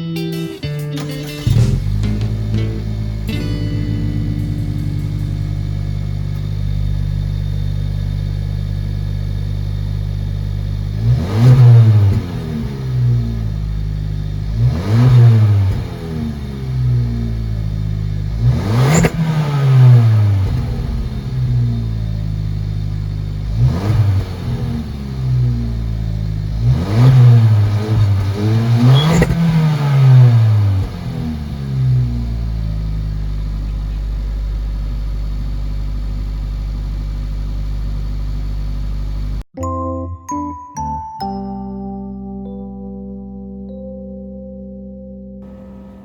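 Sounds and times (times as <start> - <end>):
car engine revving: 1.0 - 39.5, 45.4 - 46.0.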